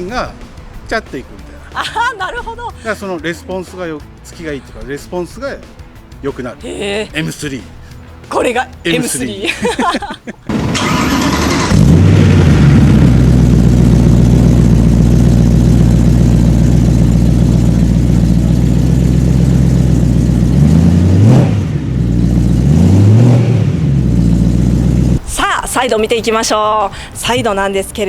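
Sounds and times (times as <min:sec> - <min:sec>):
engine starter cranking: 0:10.5 - 0:13.5
car engine idling and revving: 0:10.5 - 0:25.3.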